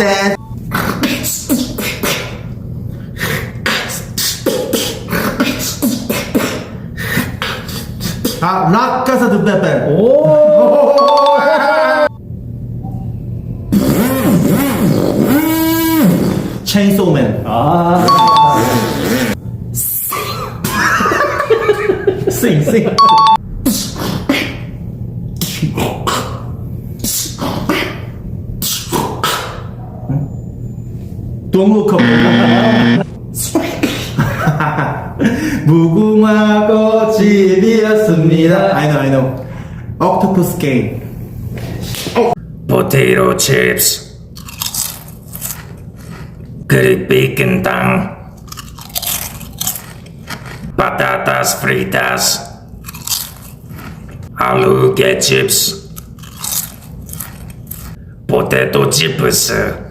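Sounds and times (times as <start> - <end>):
person beatboxing: 0.7 - 2.5, 3.2 - 8.5, 23.6 - 24.7, 25.4 - 29.7.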